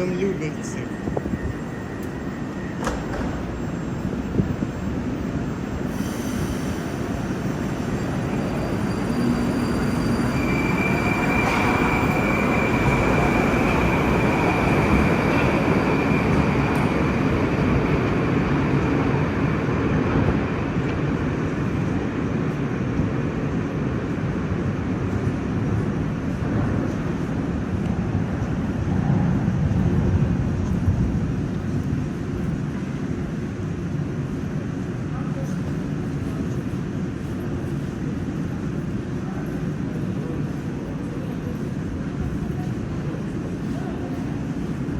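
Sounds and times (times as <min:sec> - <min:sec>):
train wheels rumbling on rails: 0:00.0 - 0:44.9
high squeal: 0:00.8 - 0:17.6.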